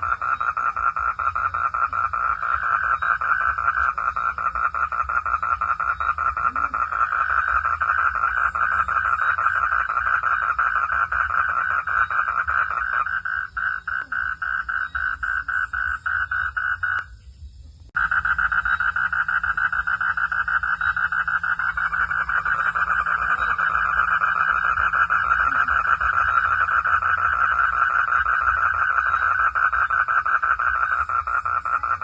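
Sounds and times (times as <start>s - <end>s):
frogs calling in chorus: 0.0s - 17.1s, 18.0s - 32.0s.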